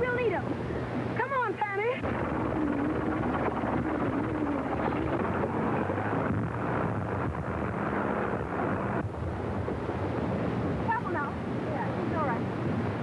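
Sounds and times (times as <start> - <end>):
dense crackling: 2.0 - 9.0
faint wavering whine: 2.0 - 9.0.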